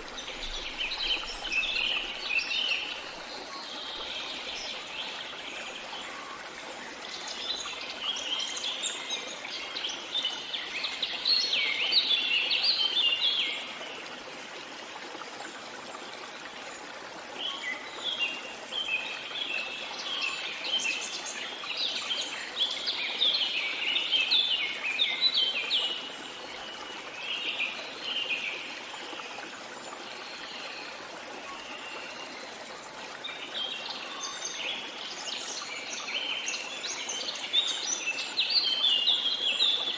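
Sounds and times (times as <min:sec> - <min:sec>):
songbirds twittering: 0:00.0 - 0:14.1
stream water rushing: 0:00.0 - 0:39.9.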